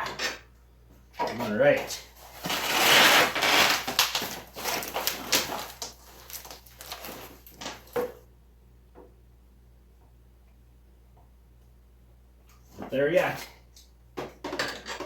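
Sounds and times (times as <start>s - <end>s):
tools and metal parts clattering: 14.2s - 15.0s.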